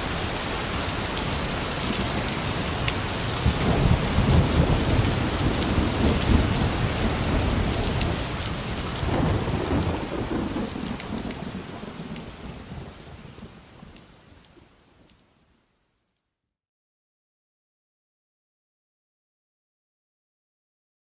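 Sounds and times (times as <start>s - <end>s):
heavy rain: 0.0s - 16.0s
thunder rolling: 1.8s - 13.0s.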